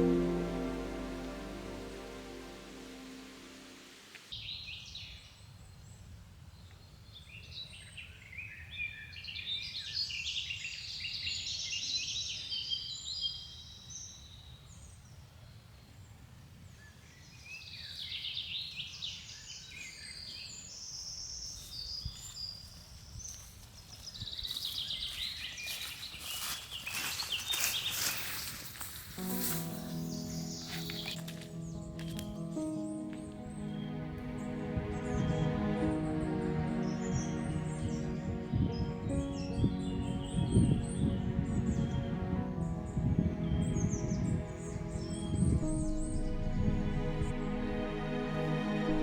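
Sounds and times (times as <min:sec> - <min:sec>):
songbirds chirping and trilling: 0:16.8 - 0:28.5, 0:29.3 - 0:47.4
steady low rumble: 0:39.6 - 0:49.0.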